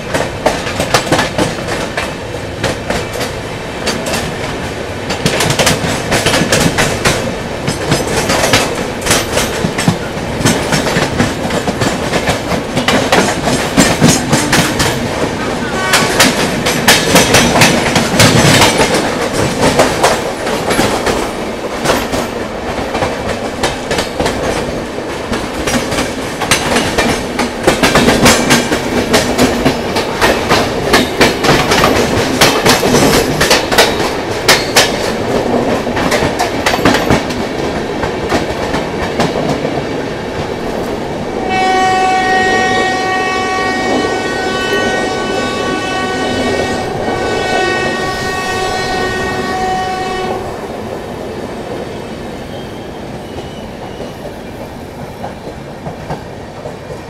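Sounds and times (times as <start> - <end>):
train wheels clattering over rail joints: 0.0 - 40.9
train rushing: 0.0 - 57.0
train horn blast: 14.3 - 16.4, 41.4 - 50.6.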